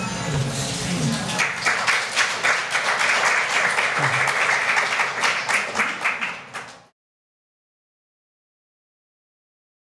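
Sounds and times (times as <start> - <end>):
audience applauding: 1.3 - 6.9.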